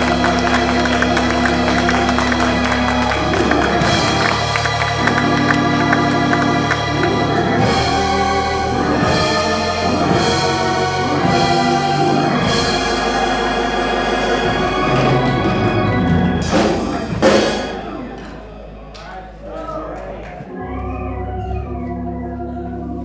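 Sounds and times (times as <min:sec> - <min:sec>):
drums: 0:00.0 - 0:19.4
church organ holding chords: 0:00.0 - 0:23.0
loud crashes: 0:15.0 - 0:19.4.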